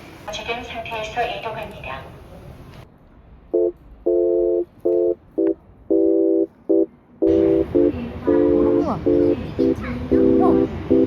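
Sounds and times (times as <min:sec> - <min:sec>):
horn chord blasts: 0:03.6 - 0:11.0.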